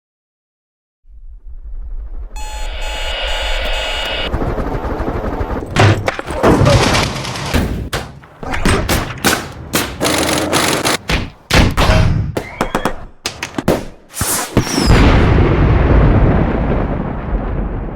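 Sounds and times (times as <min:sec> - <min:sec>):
low rumble: 0:01.1 - 0:05.6.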